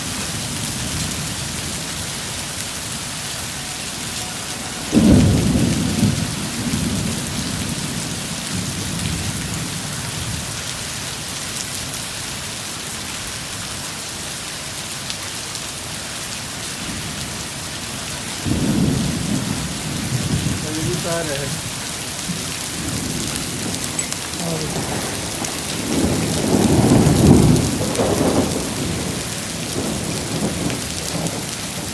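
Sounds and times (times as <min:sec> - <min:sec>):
heavy rain falling: 0:00.0 - 0:31.9
low thunder rolls: 0:04.8 - 0:10.5, 0:18.4 - 0:31.9.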